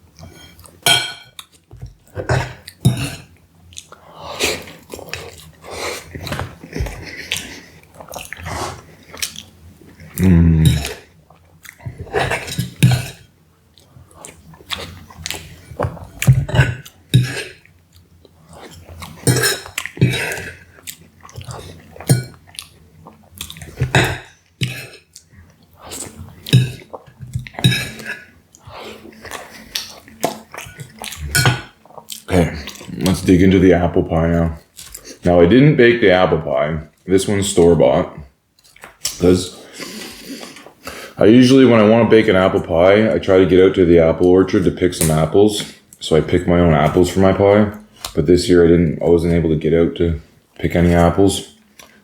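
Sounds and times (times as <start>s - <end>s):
chewing and mouth smacking: 4.6s - 12.8s, 13.7s - 33.3s, 34.6s - 35.3s, 38.6s - 41.0s, 51.7s - 52.0s
low voiced sound: 10.2s - 10.8s.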